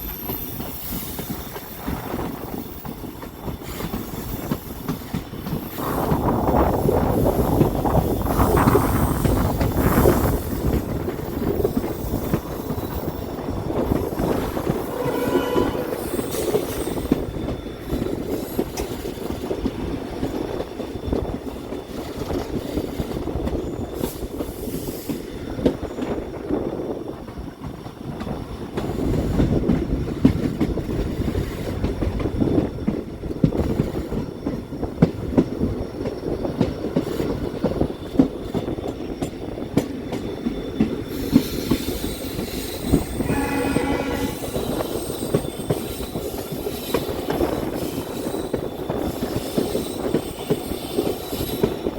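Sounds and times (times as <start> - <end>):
train wheels rumbling: 0.0 - 51.9
brief squeal: 41.2 - 45.9.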